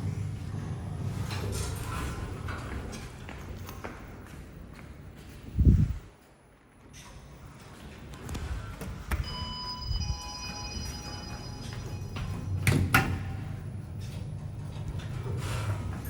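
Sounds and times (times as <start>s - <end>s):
sliding doors clattering: 0.0s - 3.3s
steady low hum: 0.0s - 16.0s
lift arrival chime: 9.2s - 12.7s.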